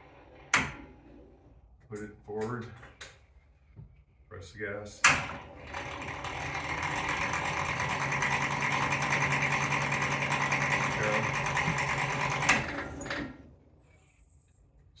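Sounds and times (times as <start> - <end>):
electric motor hum: 5.3 - 13.6
rapid dense clicking: 5.7 - 12.9.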